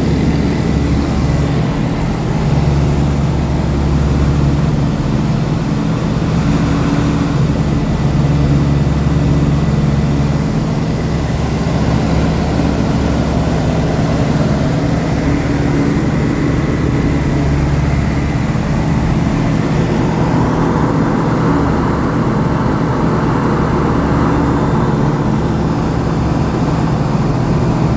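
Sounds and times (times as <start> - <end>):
light aircraft engine droning: 0.0 - 27.9.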